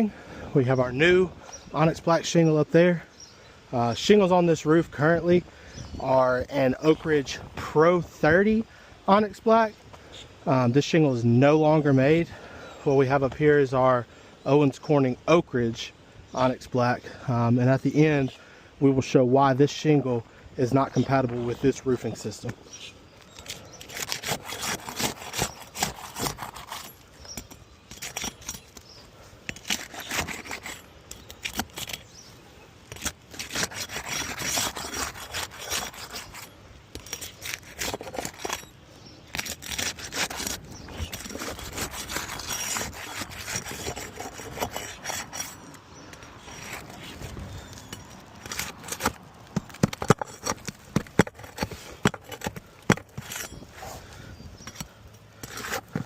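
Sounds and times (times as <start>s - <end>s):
scraping on roof shingles: 23.4s - 28.8s, 39.3s - 45.6s, 46.4s - 54.1s.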